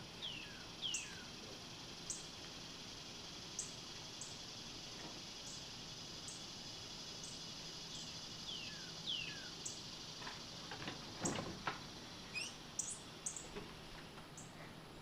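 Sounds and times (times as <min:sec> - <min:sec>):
small birds chirping: 0:00.0 - 0:14.8.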